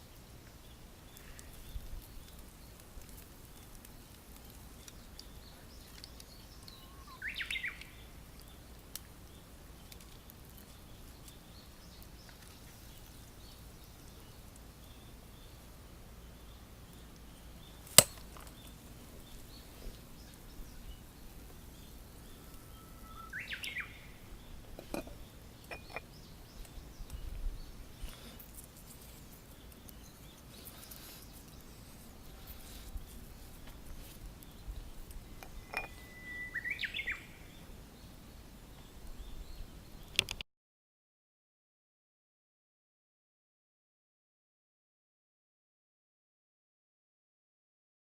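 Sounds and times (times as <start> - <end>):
small bird chirping: 4.4 - 37.8.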